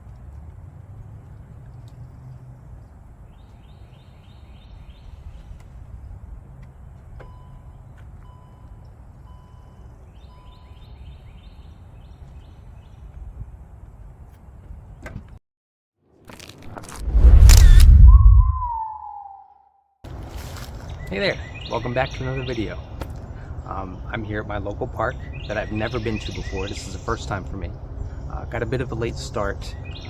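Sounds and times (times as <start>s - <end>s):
birds calling: 1.2s - 15.1s, 20.1s - 30.0s
steady low rumble: 16.6s - 19.0s.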